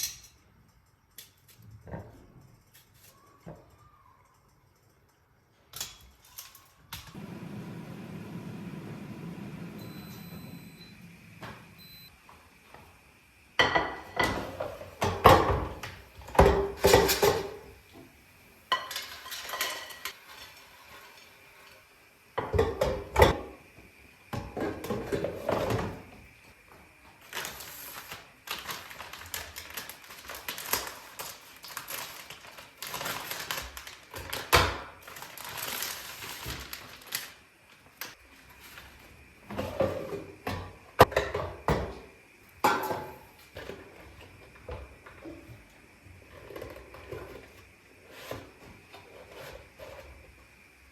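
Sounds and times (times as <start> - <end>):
dishes and cutlery clattering: 18.7 - 20.2.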